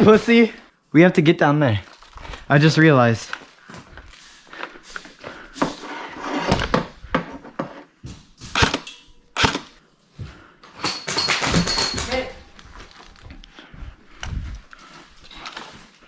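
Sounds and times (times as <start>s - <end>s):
irregular knocks and clatters: 10.8s - 13.4s.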